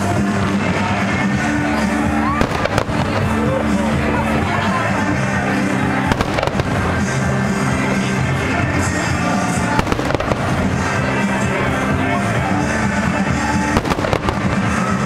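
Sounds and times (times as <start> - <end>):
loud music: 0.0 - 15.0
fireworks bangs: 2.3 - 4.2, 5.9 - 7.7, 8.6 - 11.8, 13.5 - 15.0.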